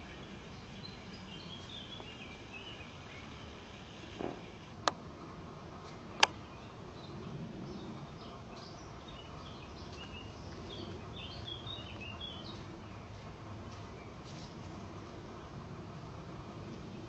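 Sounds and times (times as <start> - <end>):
birds chirping: 0.0 - 5.0, 5.8 - 14.6.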